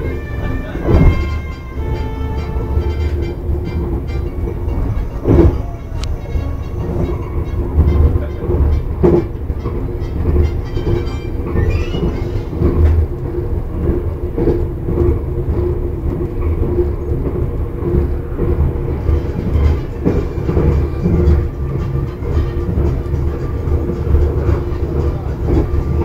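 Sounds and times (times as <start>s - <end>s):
train rumbling inside carriage: 0.0s - 26.0s
knocks from the track: 0.8s - 1.5s, 9.0s - 9.4s.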